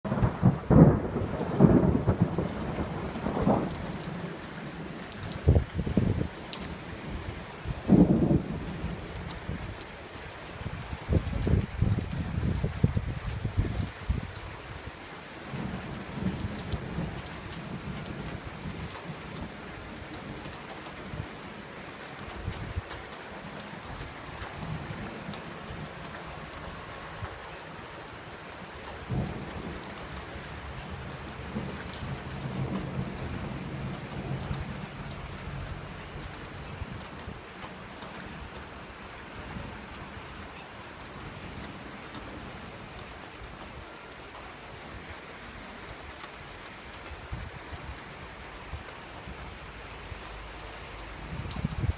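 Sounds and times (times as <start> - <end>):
steady rain: 0.0 - 51.9
thunder rumbling: 0.1 - 9.8, 29.0 - 37.0.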